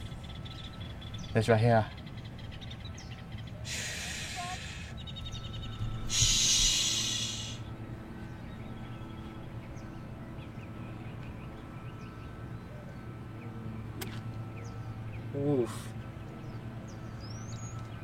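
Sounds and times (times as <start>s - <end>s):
faint bird chirps: 0.0s - 15.7s
low steady hum: 0.0s - 18.0s
loud rush of hiss: 3.7s - 4.9s, 6.1s - 7.7s.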